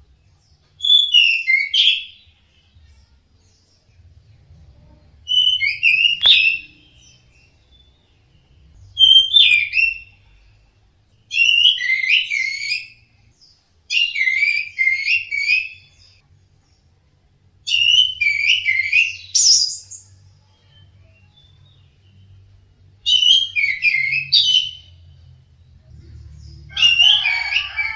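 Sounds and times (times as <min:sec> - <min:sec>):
thrush singing whistled phrases: 0:05.3 - 0:07.3, 0:09.0 - 0:10.1, 0:11.3 - 0:13.0, 0:13.9 - 0:16.2, 0:17.6 - 0:20.0, 0:23.0 - 0:25.0.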